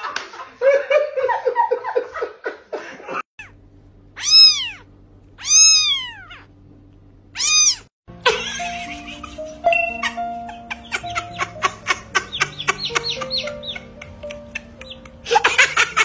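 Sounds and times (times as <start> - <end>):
faint steady hum: 3.4 - 7.8
cat meowing: 4.2 - 6.5, 7.4 - 7.9.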